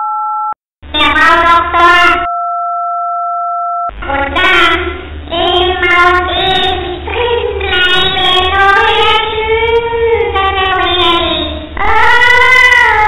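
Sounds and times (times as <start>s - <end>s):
high-pitched child-like voice: 0.9s - 2.3s, 4.0s - 13.0s.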